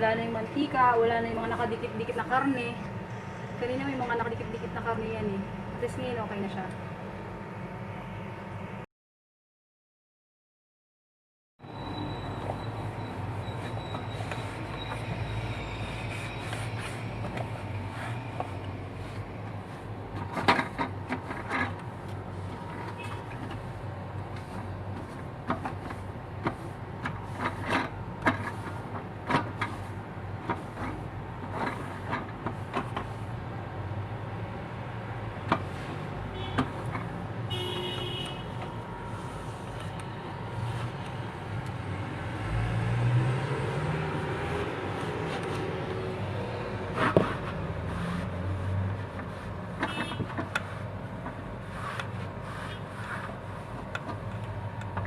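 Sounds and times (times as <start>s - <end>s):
steady low hum: 0.0s - 8.9s, 11.8s - 42.8s.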